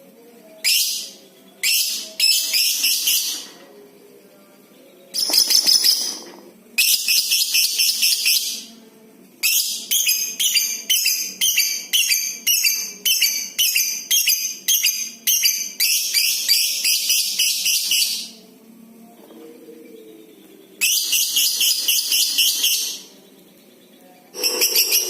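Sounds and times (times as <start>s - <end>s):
lovebird shrill chattering call: 24.4s - 25.0s.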